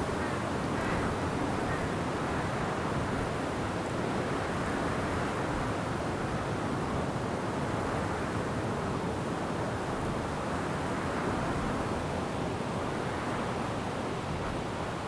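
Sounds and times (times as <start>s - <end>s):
wind through forest trees: 0.0s - 15.0s.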